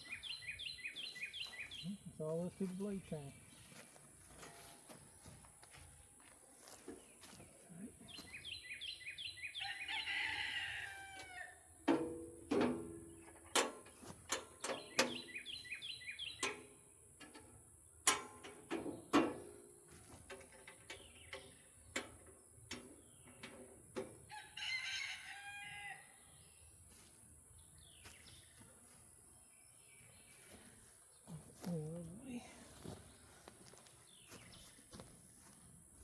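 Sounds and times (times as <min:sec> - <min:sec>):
rooster crowing: 0:09.6 - 0:11.6, 0:24.3 - 0:26.2.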